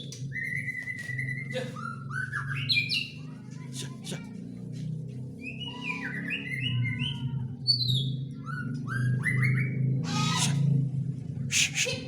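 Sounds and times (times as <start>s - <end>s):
bird whistled song: 0.3s - 3.2s, 5.4s - 10.4s.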